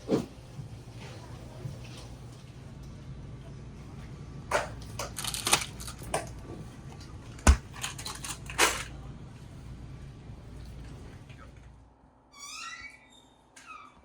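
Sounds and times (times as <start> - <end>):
rustling handling noises: 5.1 - 6.4.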